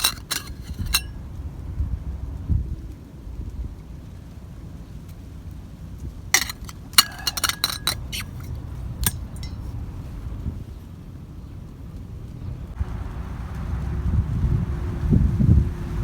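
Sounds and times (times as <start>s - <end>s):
metal camp gear clinking: 0.0s - 1.1s, 6.3s - 10.3s
wind rumble on microphone: 0.0s - 6.4s, 8.4s - 16.0s.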